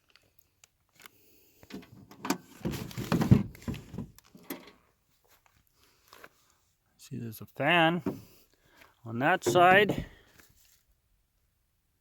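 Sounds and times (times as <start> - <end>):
box knocks and clatter: 9.4 - 10.2.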